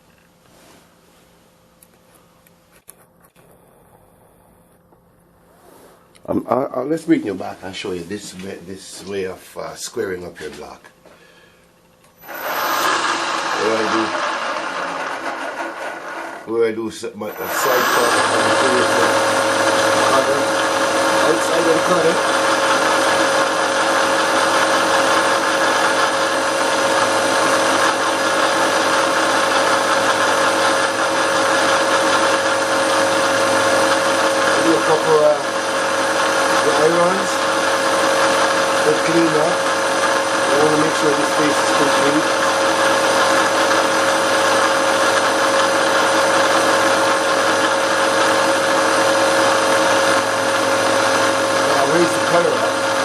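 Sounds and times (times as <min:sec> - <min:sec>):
steady whine: 0:01.8 - 0:53.0
milling machine running: 0:12.1 - 0:53.0.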